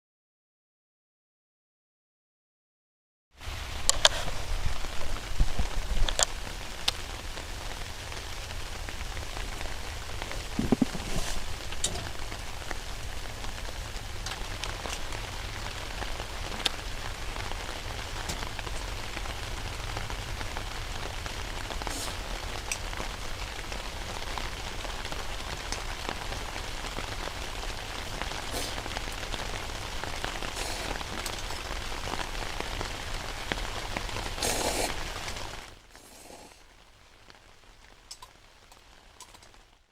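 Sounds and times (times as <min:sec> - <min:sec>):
wood fire crackling: 0:03.4 - 0:39.9.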